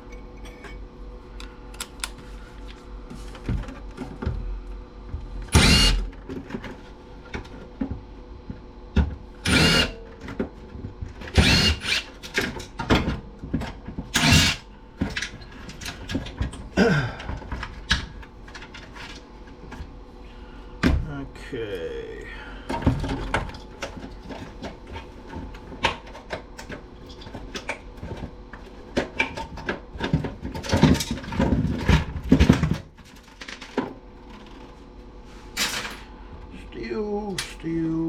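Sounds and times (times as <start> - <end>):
power drill bursts: 5.5 - 6.1, 9.4 - 10.0, 11.3 - 12.1, 14.2 - 14.6.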